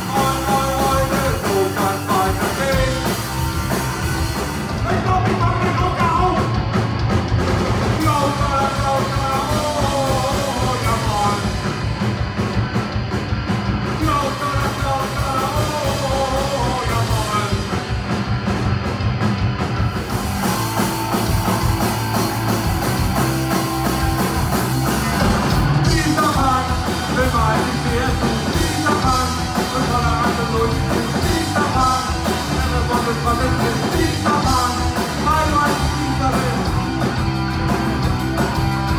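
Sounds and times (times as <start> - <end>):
person singing: 0.0 - 3.3, 8.0 - 11.6, 14.0 - 17.8, 25.0 - 36.8
punk rock band playing live: 0.0 - 38.9.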